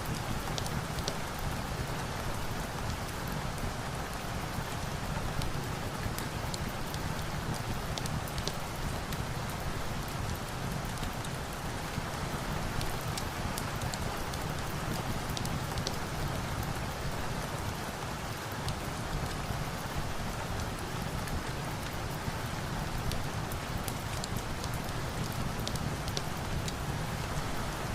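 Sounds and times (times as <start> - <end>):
steady rain falling: 0.0 - 27.9
light ticks: 14.9 - 16.0, 23.9 - 26.8.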